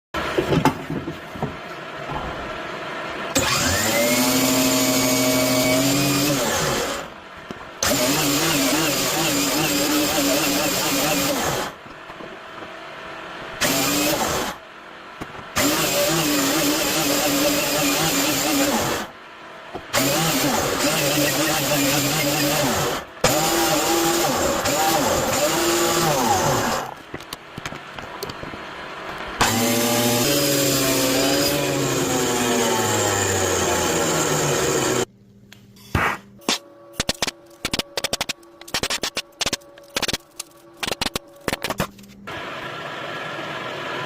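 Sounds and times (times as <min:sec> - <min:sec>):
electric motor spinning up: 0:03.3 - 0:07.1, 0:13.6 - 0:14.6, 0:29.4 - 0:35.1
power tool motor running: 0:03.3 - 0:07.1, 0:07.8 - 0:11.8, 0:13.6 - 0:14.6, 0:15.6 - 0:19.1, 0:19.9 - 0:27.0, 0:29.4 - 0:35.1.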